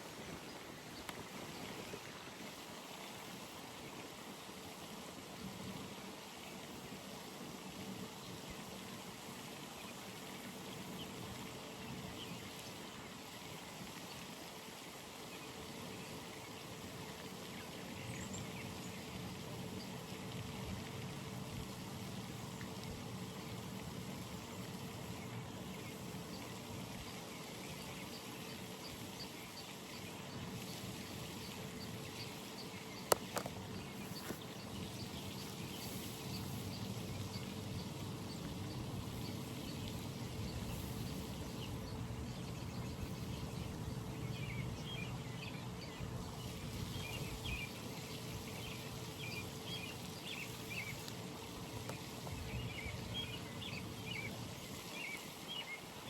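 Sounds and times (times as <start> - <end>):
background hiss: 0.0 - 56.0
water trickling: 6.6 - 56.0
small birds chirping: 24.4 - 56.0.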